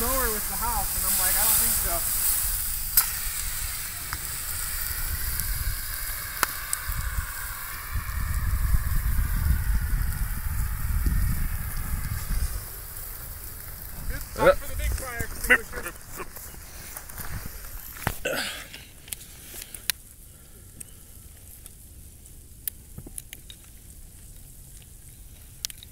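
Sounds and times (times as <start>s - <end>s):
sharp pops: 0.0s - 8.4s
low rumble: 0.0s - 17.9s
burning lawnmower hissing: 0.0s - 25.9s.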